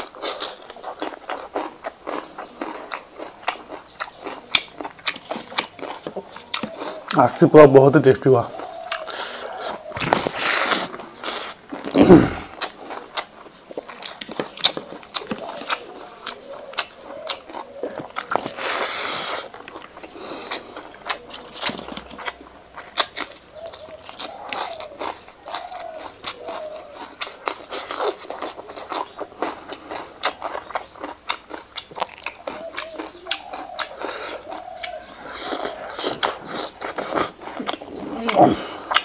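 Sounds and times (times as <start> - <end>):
person chewing wetly: 0.0 - 39.0
noisy breath or slurp: 9.1 - 12.6, 18.5 - 20.7.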